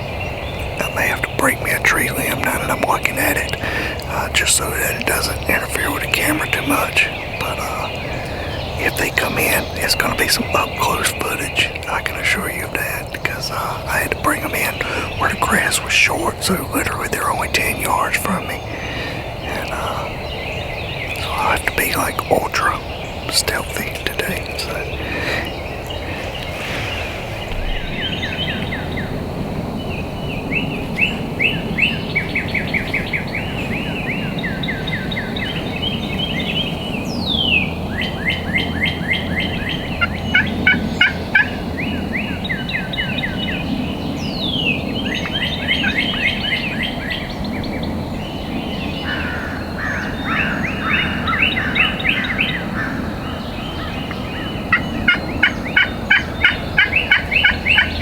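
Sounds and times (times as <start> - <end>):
chorus of trilled animal calls: 48.8 - 58.0.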